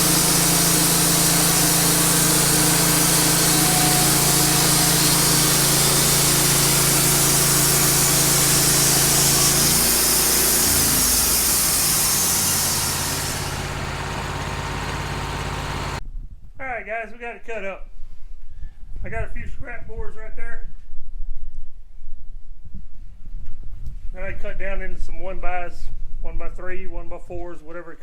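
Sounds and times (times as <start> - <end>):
band blade sawing log with hiss: 0.0 - 14.3
sawmill engine running: 0.0 - 16.0.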